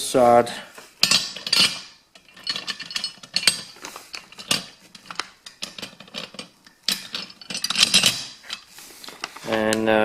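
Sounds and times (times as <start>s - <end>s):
metal bolts clinking on metal: 1.0s - 8.7s.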